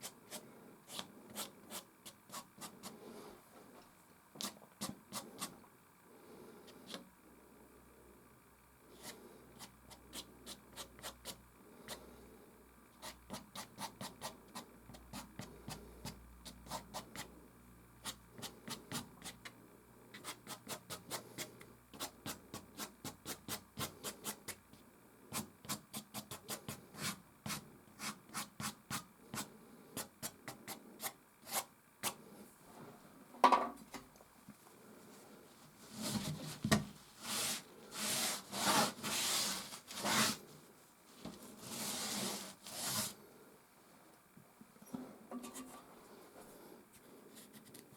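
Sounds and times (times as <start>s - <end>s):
pastel scratching on canvas: 37.2s - 40.4s, 41.6s - 43.2s.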